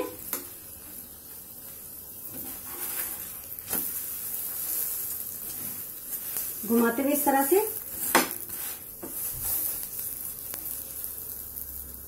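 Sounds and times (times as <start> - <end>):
oil sizzling on a griddle: 0.0 - 12.0
spatula tapping a griddle: 8.0 - 9.6.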